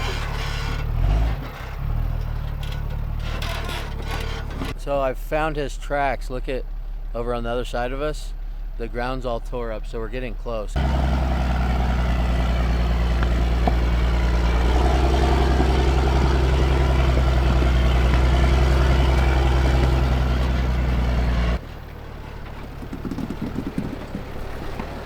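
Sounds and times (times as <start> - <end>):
diesel truck engine droning: 0.0 - 25.0
low rough rumbling: 10.6 - 25.0.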